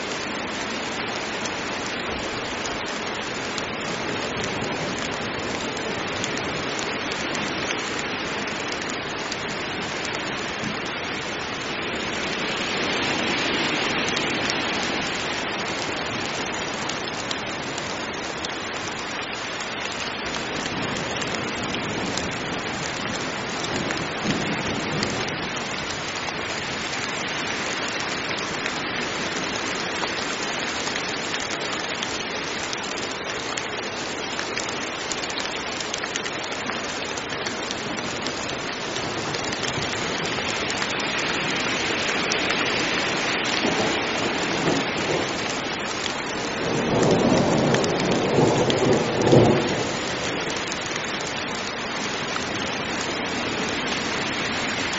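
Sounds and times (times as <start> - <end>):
heavy rain falling: 0.0 - 54.9
thunder rumbling: 42.5 - 45.7, 46.3 - 50.5.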